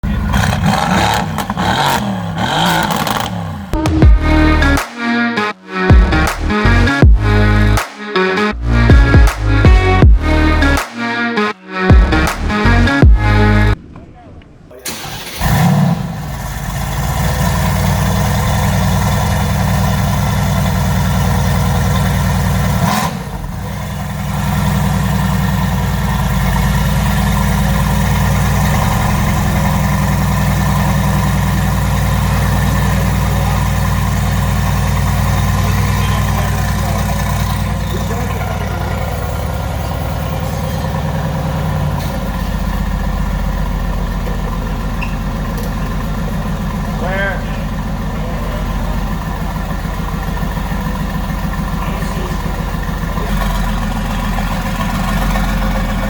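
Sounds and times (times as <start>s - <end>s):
car engine fast idle: 14.9s - 56.0s.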